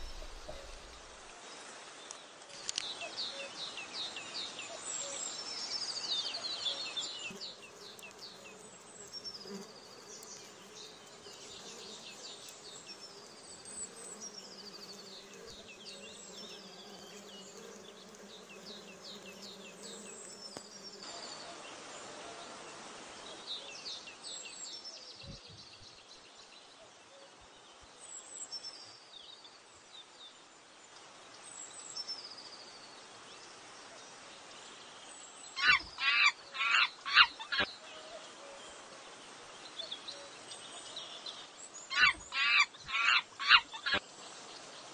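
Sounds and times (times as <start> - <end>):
low steady buzz: 0.0 - 1.4
small birds chirping: 2.0 - 21.1.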